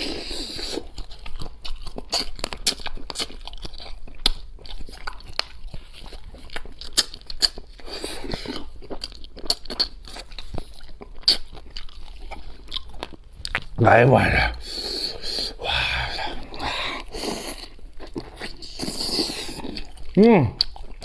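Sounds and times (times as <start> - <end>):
chewing and crunching: 0.0 - 13.8, 14.5 - 21.0.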